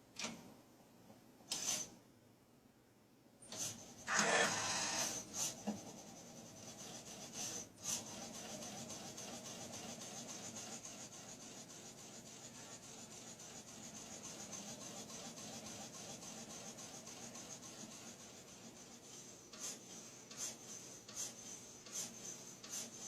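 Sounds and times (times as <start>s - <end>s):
rubbing scraping machine: 4.1s - 5.2s.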